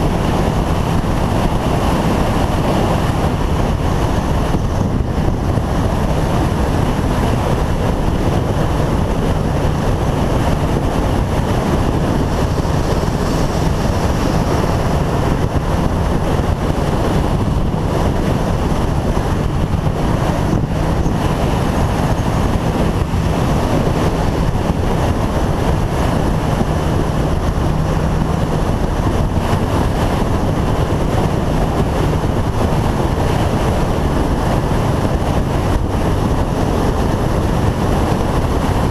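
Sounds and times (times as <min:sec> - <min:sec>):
motorcycle engine running: 0:00.0 - 0:38.9
wind rushing over microphone: 0:00.0 - 0:38.9.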